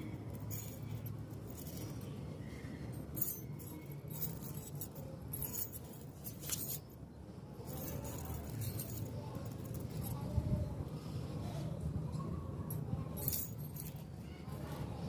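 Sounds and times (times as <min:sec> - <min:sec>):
low steady hum: 0:00.0 - 0:15.0
small objects clinking: 0:03.0 - 0:06.9.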